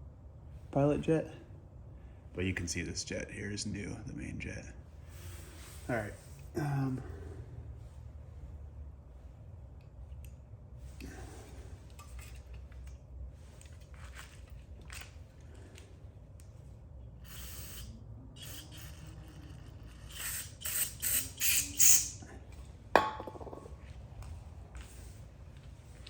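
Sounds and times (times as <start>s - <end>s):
short hissing bursts: 17.2s - 22.2s.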